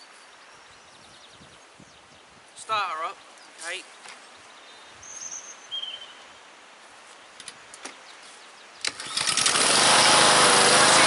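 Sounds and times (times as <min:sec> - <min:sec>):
lawn mower engine starting: 0:08.8 - 0:11.0.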